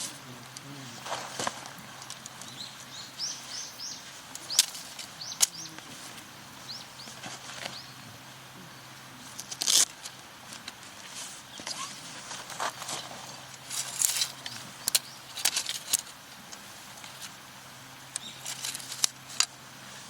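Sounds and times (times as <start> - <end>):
faint steady hum: 0.0 - 20.0
small bird chirping: 2.2 - 8.9, 18.1 - 18.7.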